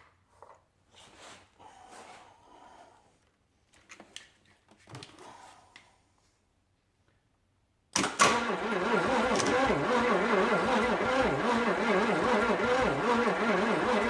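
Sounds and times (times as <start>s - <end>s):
engine cranking on starter: 8.0s - 14.0s.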